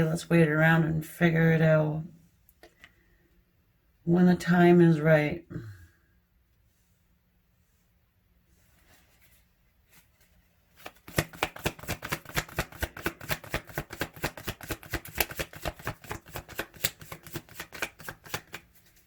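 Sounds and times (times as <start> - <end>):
cards being shuffled: 8.8 - 19.0.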